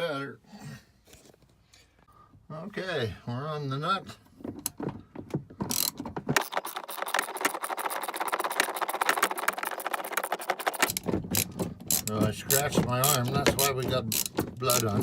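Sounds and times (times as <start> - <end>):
ratchet wrench clicking rapidly: 5.7 - 15.0
tool knocking on nut: 10.6 - 15.0.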